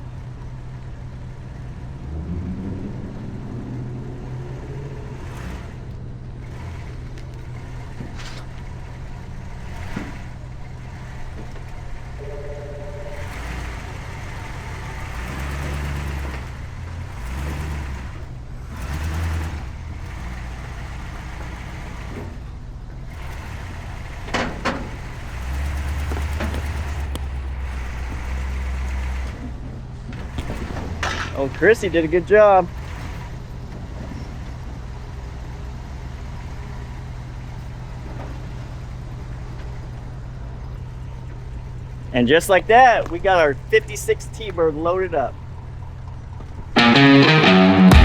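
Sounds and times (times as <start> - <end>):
car engine revving: 1.5 - 7.1, 13.1 - 20.8, 46.8 - 48.0.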